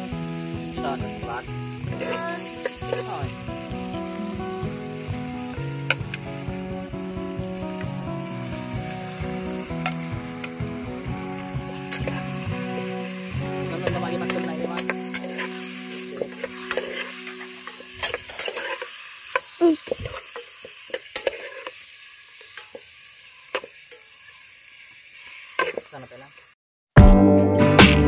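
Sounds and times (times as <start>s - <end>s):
food sizzling in a pot: 0.0s - 26.6s
utensil scraping a pot: 14.3s - 20.4s, 21.1s - 21.8s.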